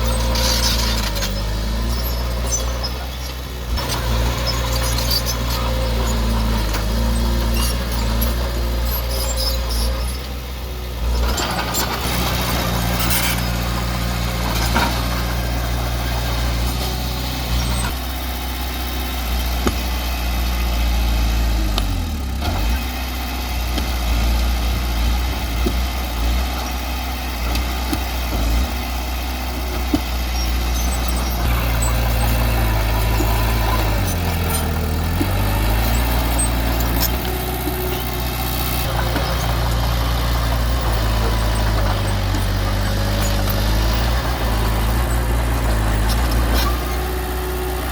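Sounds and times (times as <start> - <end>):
heavy diesel engine running: 0.0 - 47.9.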